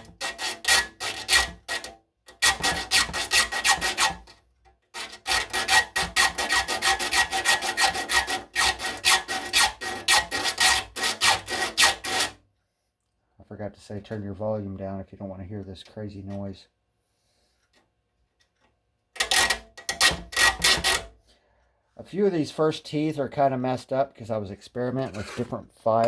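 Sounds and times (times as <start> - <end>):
file rasping on saw teeth: 0.0 - 12.4, 19.2 - 21.1.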